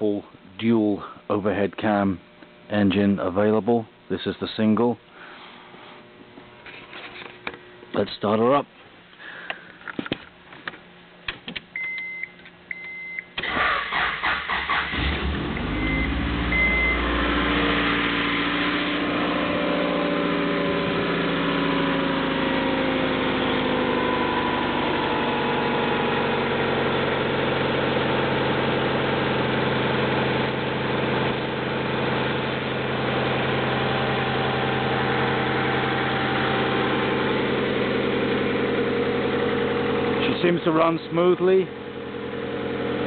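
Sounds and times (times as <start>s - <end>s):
car engine starting and idling: 13.4s - 43.0s.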